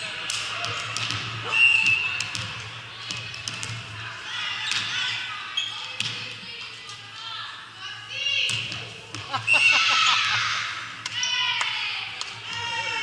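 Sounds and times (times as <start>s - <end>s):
shoe squeaks on court: 1.4s - 2.2s.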